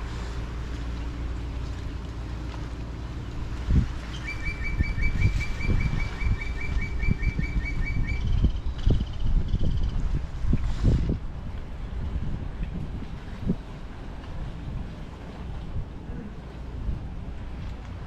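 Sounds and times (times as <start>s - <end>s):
water rumble: 0.0s - 18.0s
wind on microphone: 3.2s - 18.0s
bird trill: 4.1s - 8.5s.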